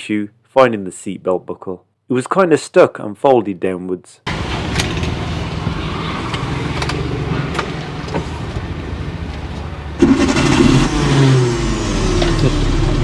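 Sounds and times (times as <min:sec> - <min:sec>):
car engine idling: 0:07.5 - 0:13.0.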